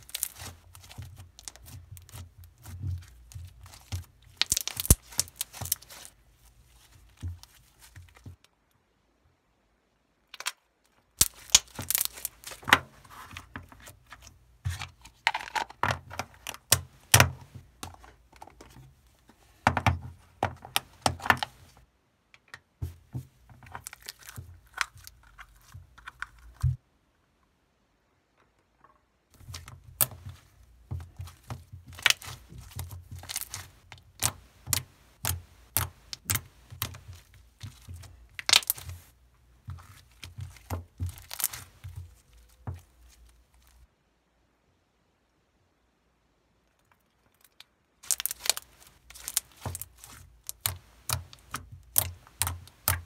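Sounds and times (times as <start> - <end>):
small objects clicking and rattling: 0.0 - 2.1, 3.3 - 6.1, 11.2 - 12.7, 46.8 - 53.0.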